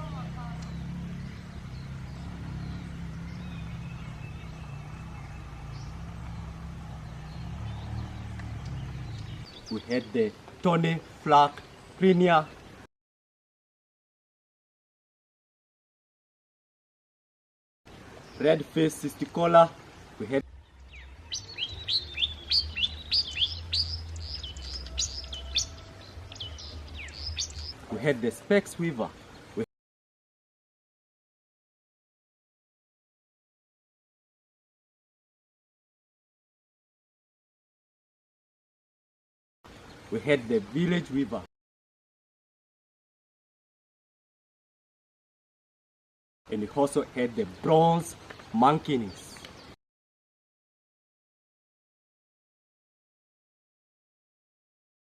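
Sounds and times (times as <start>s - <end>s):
vehicle engine humming: 0.0s - 10.6s, 20.4s - 27.8s
faint high bird calls: 20.5s - 27.8s
songbird whistling: 20.9s - 27.8s.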